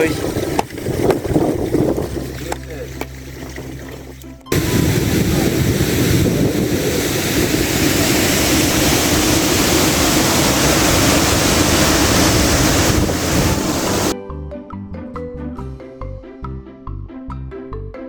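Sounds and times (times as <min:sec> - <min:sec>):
stream water rushing: 0:00.0 - 0:14.2.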